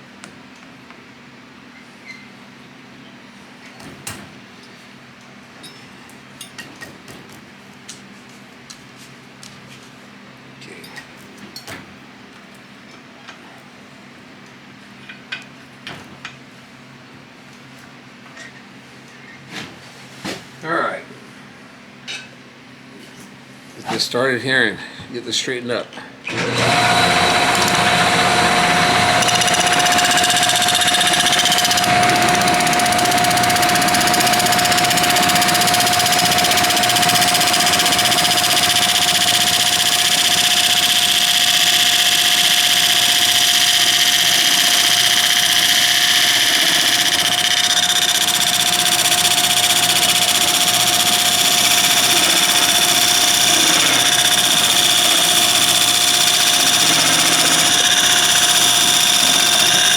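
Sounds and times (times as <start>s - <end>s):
wood lathe motor whine: 26.3s - 59.9s.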